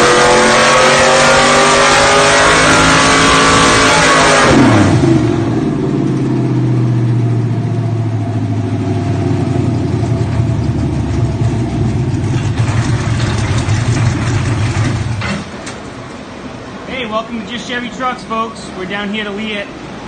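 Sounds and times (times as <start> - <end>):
car engine revving and idling: 0.0 - 15.3.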